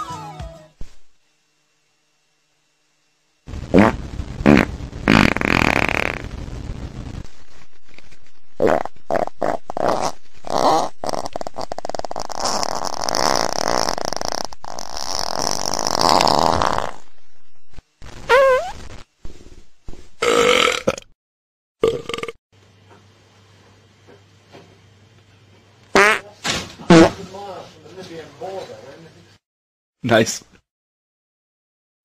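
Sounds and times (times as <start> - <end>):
comic fart sounds: 3.5 - 6.5, 8.6 - 17.0, 18.2 - 18.9, 20.2 - 21.2, 25.9 - 26.3, 26.9 - 27.2.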